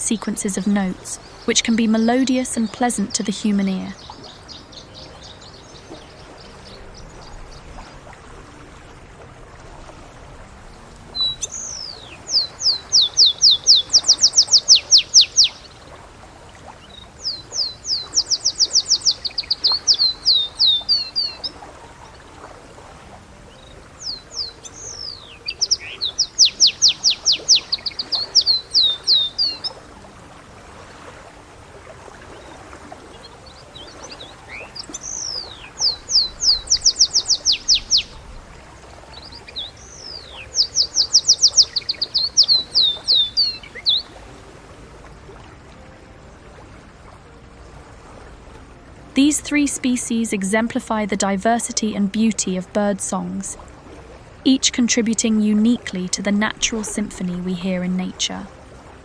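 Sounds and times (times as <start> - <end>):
canary singing trills: 0.0 - 7.6, 10.7 - 30.2, 32.3 - 45.0, 54.5 - 58.5.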